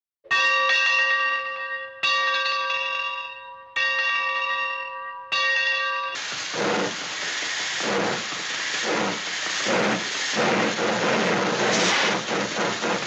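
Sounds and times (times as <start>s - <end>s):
steady hiss: 6.2s - 13.0s.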